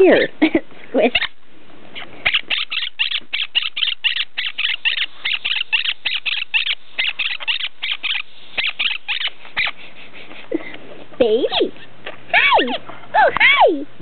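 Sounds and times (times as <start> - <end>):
parrot chirping: 0.0 - 0.4, 1.0 - 1.4, 2.2 - 9.8, 11.4 - 12.8.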